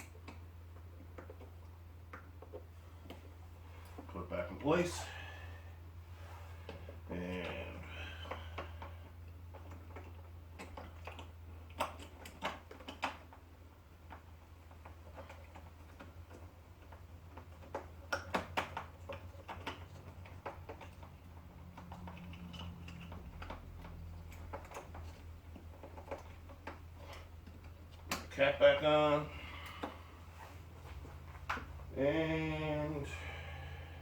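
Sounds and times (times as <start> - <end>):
steady low hum: 0.0 - 34.0
small parts and tools clicking: 6.6 - 30.0.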